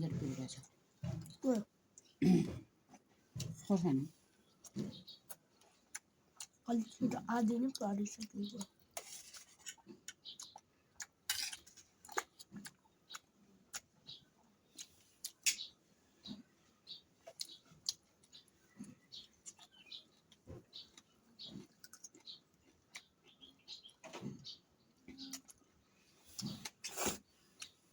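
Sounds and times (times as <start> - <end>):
chewing and mouth smacks: 4.6 - 6.6, 8.2 - 16.5, 17.2 - 24.5, 25.1 - 27.8
small mouth clicks: 26.4 - 27.8.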